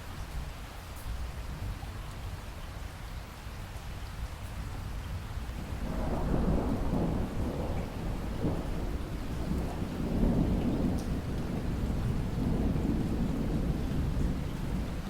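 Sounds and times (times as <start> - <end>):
steady falling rain: 0.0 - 15.0
low thunder rumble: 5.6 - 15.0.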